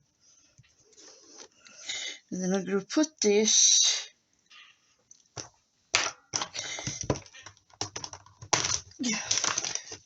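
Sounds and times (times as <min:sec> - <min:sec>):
paper rustling: 0:06.6 - 0:10.0.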